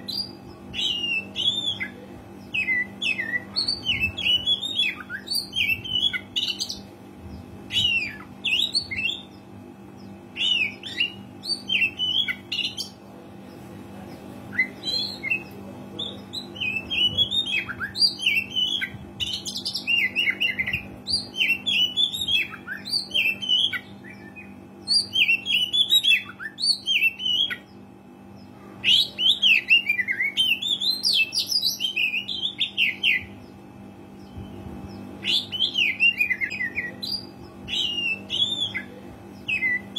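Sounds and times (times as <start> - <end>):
steady low hum: 0.0 - 39.9
bird singing whistled notes: 34.2 - 39.9.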